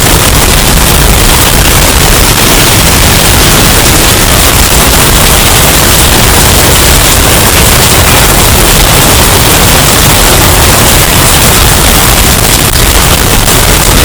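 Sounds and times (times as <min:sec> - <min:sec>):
distorted hurricane wind: 0:00.0 - 0:14.0.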